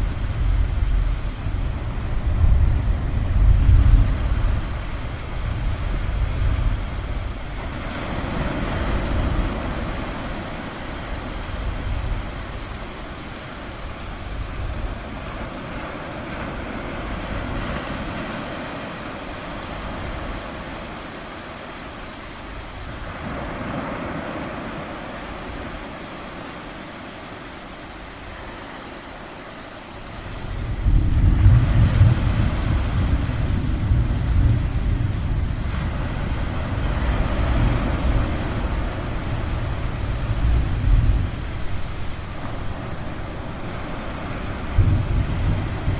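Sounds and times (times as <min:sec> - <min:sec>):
low rumble: 0:00.0 - 0:07.2
ocean surf washing in: 0:00.0 - 0:45.9.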